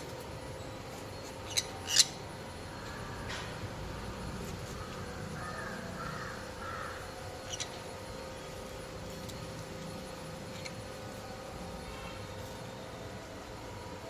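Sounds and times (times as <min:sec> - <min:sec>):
crow cawing: 0:04.8 - 0:07.1.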